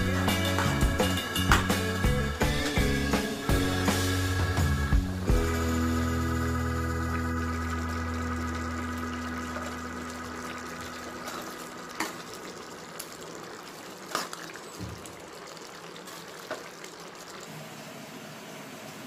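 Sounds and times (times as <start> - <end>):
background music: 0.0 - 11.8
gravy simmering and bubbling: 4.9 - 19.0.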